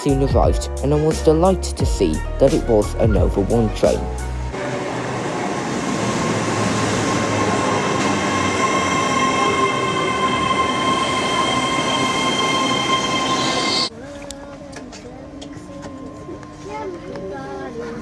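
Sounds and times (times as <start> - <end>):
train rolling on rails: 4.5 - 13.9
wheels and brakes squealing: 4.6 - 13.9.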